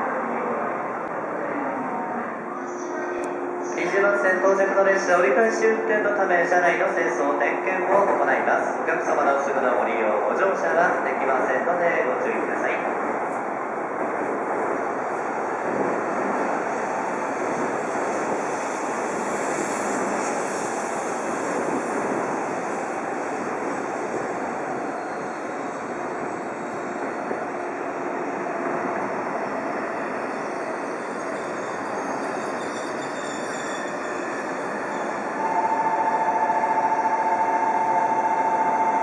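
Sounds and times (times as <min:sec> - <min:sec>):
train cars whooshing past: 0:13.1 - 0:35.9.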